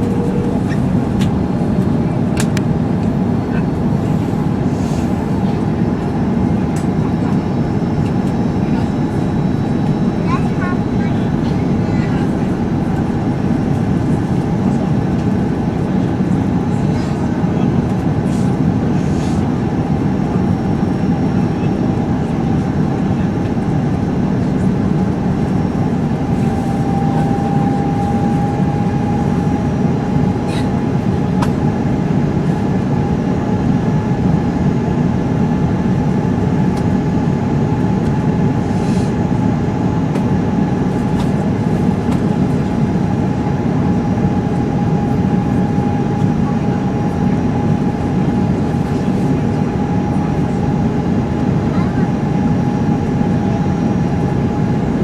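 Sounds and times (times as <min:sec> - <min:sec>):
thin steady whine: 0:00.0 - 0:33.6
airplane cabin engine drone: 0:00.0 - 0:55.0.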